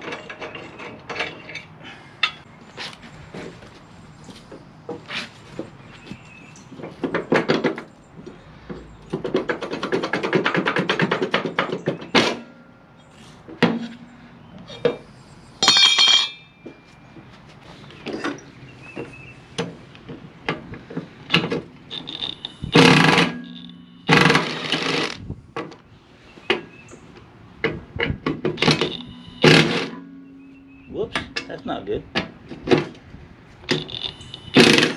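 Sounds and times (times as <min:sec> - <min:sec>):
loud knocks and clunks on metal: 0:06.7 - 0:07.9, 0:08.7 - 0:12.7, 0:13.5 - 0:14.1, 0:19.0 - 0:25.8, 0:27.6 - 0:30.5, 0:31.2 - 0:33.0, 0:33.7 - 0:34.9
ringing metallic clink: 0:15.6 - 0:16.6.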